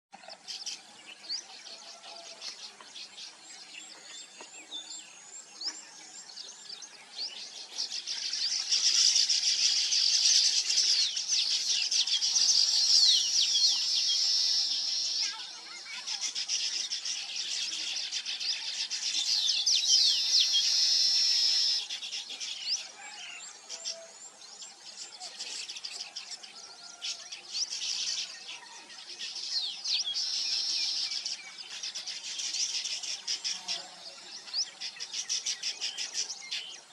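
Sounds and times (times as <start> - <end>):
flock of small birds chirping: 0.1 - 36.9.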